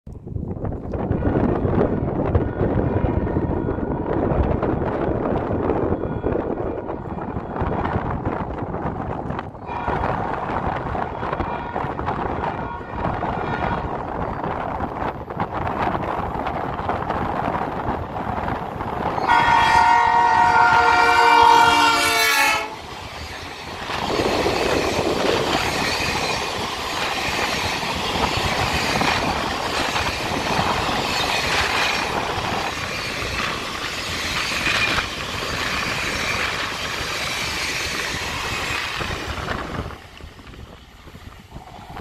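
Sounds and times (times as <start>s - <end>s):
train passing and rumbling: 0.1s - 42.0s
locomotive chord horn blast: 9.7s - 10.2s, 11.1s - 13.9s, 19.2s - 22.9s.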